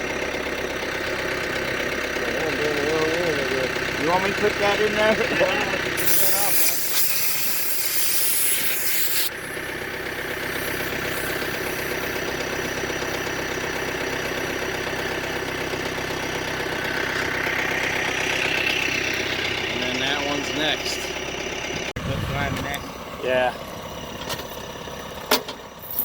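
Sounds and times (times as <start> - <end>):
engine idling: 0.0 - 26.0
loud hiss: 6.0 - 9.3.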